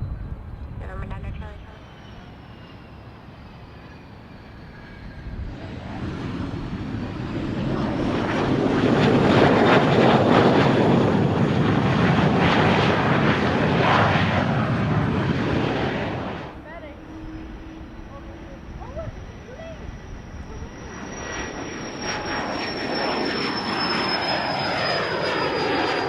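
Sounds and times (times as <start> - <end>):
airplane engine passing: 0.0 - 26.0
high falling whine: 12.8 - 26.0.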